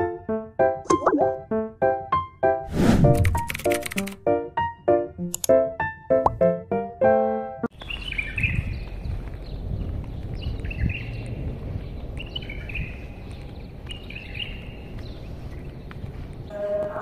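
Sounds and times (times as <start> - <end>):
bird chirping call: 7.8 - 9.6.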